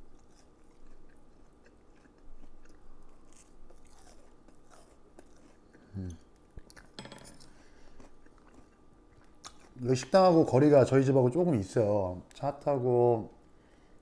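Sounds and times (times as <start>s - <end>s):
chewing crispy fried food: 0.0s - 10.1s.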